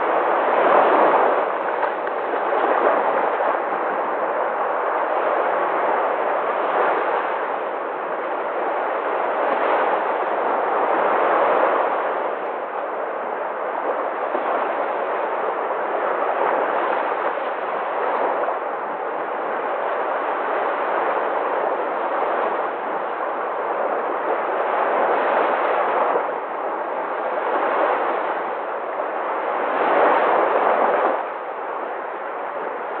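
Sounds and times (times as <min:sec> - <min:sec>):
sea waves breaking: 0:00.0 - 0:33.0.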